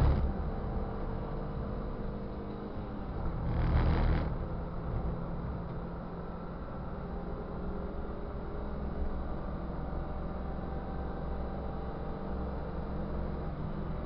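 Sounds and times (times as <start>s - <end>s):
race car engine at speed: 0.0s - 14.0s
road and wind noise: 0.0s - 14.0s.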